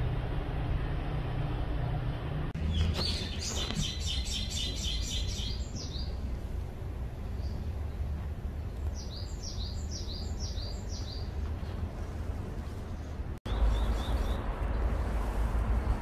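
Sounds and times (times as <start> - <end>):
low outdoor rumble: 0.0 - 16.0
small bird chirping: 2.6 - 6.2, 8.7 - 11.3.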